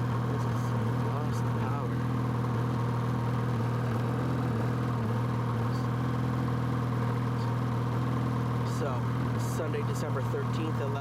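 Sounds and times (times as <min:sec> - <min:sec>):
snowmobile engine idling: 0:00.0 - 0:11.0.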